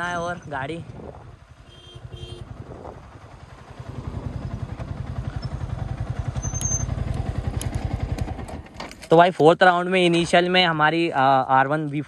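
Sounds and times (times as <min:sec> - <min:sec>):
motorcycle engine running: 0:00.0 - 0:08.9.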